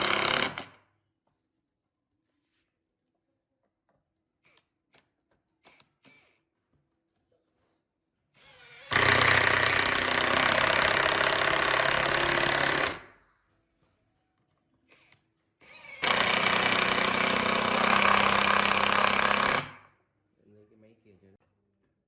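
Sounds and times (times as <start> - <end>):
power tool running: 0.0 - 0.7, 8.5 - 13.0, 15.6 - 19.8.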